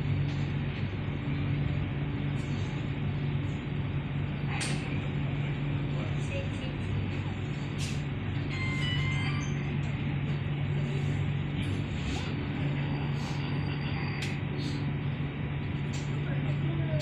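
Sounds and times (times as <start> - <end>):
metro train running inside car: 0.0 - 17.0.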